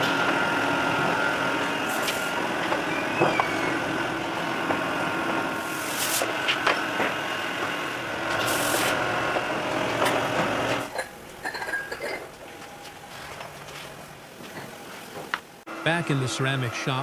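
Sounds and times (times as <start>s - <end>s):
motorised machine running: 0.0s - 10.9s.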